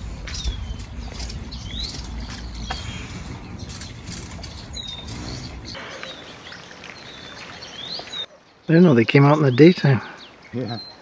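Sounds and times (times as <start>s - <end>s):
low background rumble: 0.0s - 5.8s
birds calling: 0.0s - 11.0s.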